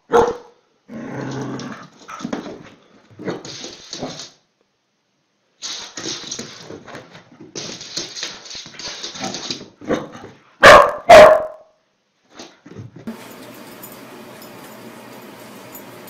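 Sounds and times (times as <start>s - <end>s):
dog barking loudly: 0.1s - 0.6s, 10.6s - 11.7s.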